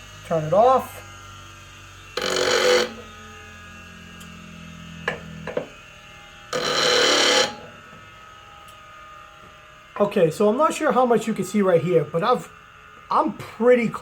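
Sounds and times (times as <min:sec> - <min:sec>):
bench grinder humming: 0:00.0 - 0:14.0
metal grinding on wheel: 0:02.2 - 0:03.2, 0:06.5 - 0:07.8.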